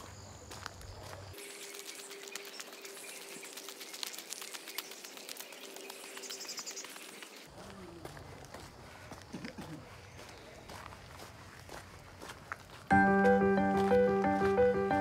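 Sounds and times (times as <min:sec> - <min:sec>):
birds chirping: 0:01.4 - 0:07.5, 0:09.7 - 0:10.9.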